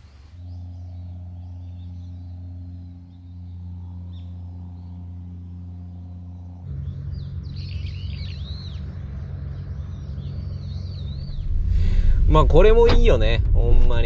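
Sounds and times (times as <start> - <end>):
low outdoor rumble: 0.0 - 14.0
steady low hum: 0.0 - 14.0
small bird chirping: 6.3 - 11.9.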